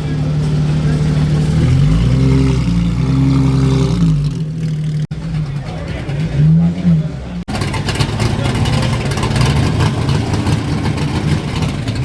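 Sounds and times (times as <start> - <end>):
car engines running: 0.0 - 12.0
engine revving: 0.0 - 12.0.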